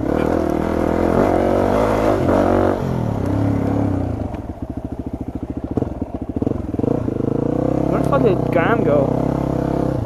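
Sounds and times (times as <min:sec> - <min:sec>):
dirt bike engine idling: 0:01.8 - 0:09.5.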